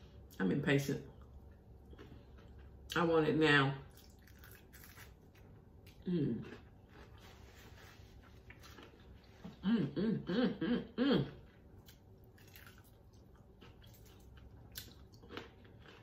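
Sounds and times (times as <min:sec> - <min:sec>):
person chewing crispy food: 0:01.1 - 0:03.0, 0:03.9 - 0:09.6, 0:11.4 - 0:16.0.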